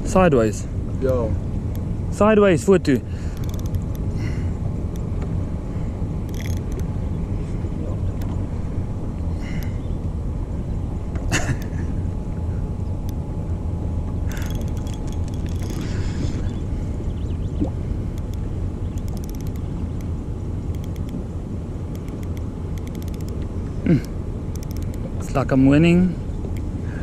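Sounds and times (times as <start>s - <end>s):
outboard motor running: 0.0s - 27.0s
light clatter: 14.3s - 16.0s.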